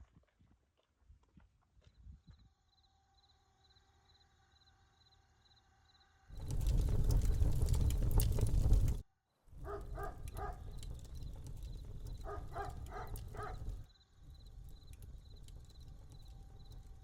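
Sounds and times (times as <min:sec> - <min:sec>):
outdoor ambience: 0:00.0 - 0:17.0
loud rumbling noise: 0:06.3 - 0:09.0, 0:09.6 - 0:17.0.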